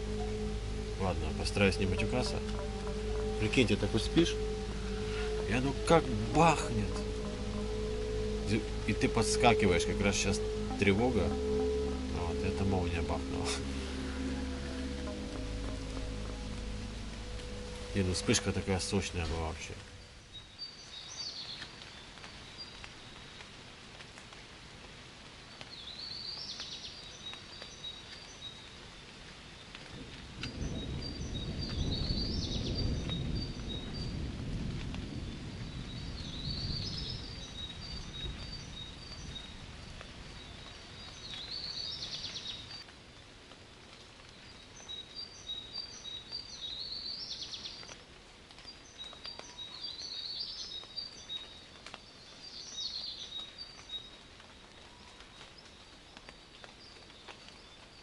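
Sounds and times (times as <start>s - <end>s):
thunder rumbling: 0.0s - 20.3s, 29.9s - 40.4s
songbird singing: 0.0s - 23.6s, 25.4s - 34.4s, 35.0s - 43.3s, 44.2s - 58.0s
light steady rain: 0.0s - 58.0s.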